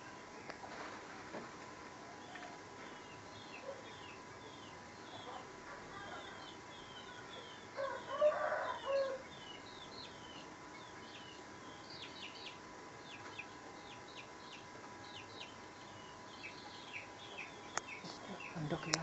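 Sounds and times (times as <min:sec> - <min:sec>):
small birds chirping: 0:02.0 - 0:19.0
rooster crowing: 0:07.7 - 0:09.3.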